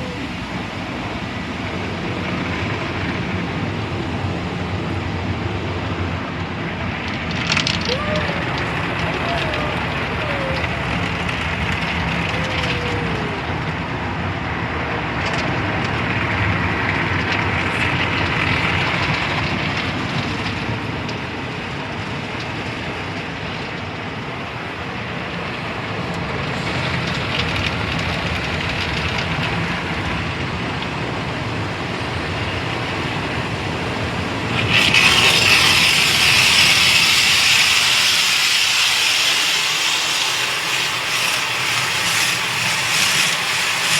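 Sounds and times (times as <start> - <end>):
car wash water spray: 26.5 - 43.9
loud sharp spray hiss: 34.4 - 43.9.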